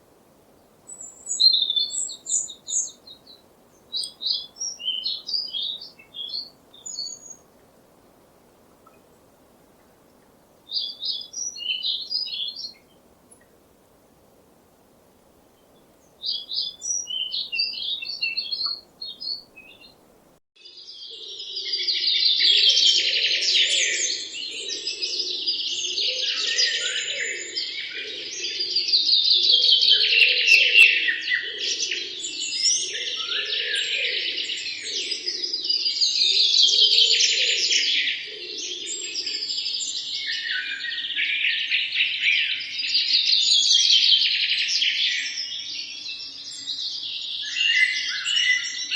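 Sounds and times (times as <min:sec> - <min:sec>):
birds chirping: 0:00.6 - 0:07.7, 0:08.8 - 0:13.6, 0:15.5 - 0:20.0.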